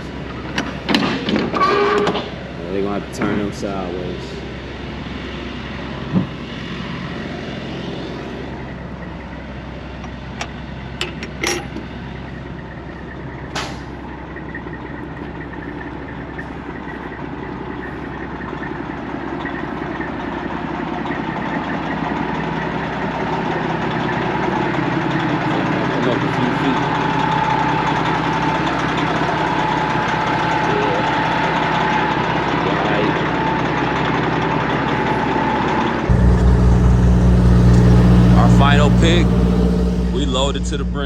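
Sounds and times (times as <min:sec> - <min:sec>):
truck engine idling: 0:36.1 - 0:41.0.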